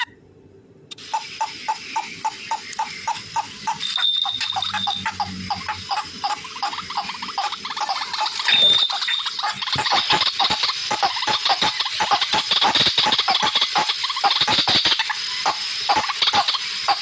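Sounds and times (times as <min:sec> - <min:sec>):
bird chirping rapidly: 0:01.1 - 0:16.5
thin high whistle: 0:03.8 - 0:05.0, 0:08.5 - 0:09.3.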